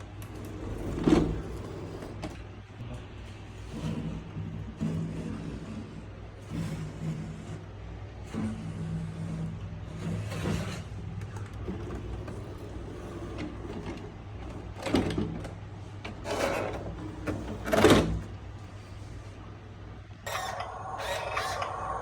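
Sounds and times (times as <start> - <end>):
toy truck motors whirring: 20.3 - 22.0.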